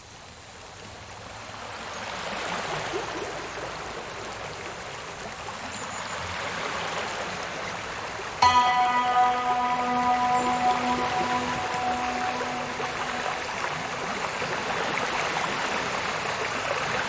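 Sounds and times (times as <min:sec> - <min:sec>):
steady rain: 0:00.0 - 0:02.4
running water: 0:07.8 - 0:17.0
music with held notes: 0:08.4 - 0:14.9.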